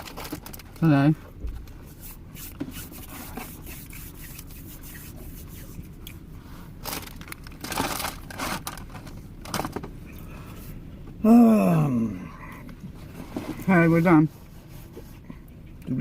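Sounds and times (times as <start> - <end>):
chip bag crinkling: 6.8 - 8.9.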